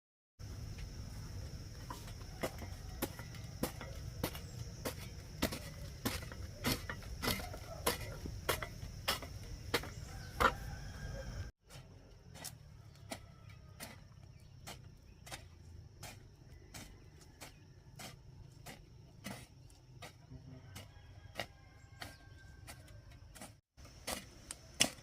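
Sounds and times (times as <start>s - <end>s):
night insects chirring: 0.4s - 25.0s.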